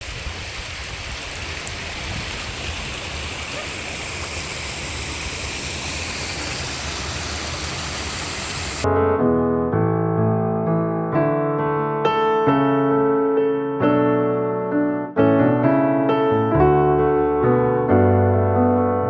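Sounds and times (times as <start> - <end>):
stream rushing over rocks: 0.0 - 8.8.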